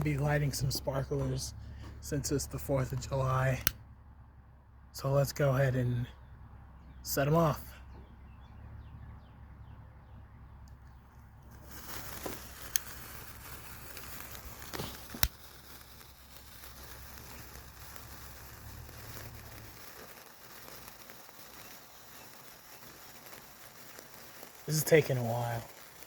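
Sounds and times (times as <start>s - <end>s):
sparkler crackling hiss: 11.5s - 26.0s
sharp clicks: 13.9s - 18.1s.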